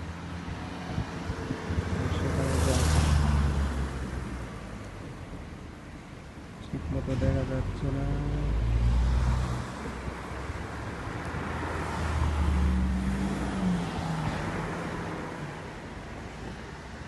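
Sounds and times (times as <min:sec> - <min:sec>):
vehicle passing by: 0:00.3 - 0:04.6, 0:07.2 - 0:15.6.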